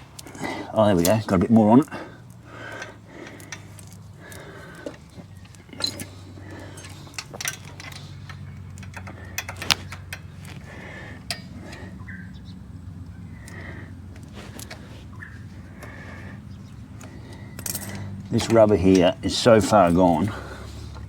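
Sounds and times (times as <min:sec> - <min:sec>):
hand tools clicking and tapping: 0:00.0 - 0:12.2, 0:13.0 - 0:21.0.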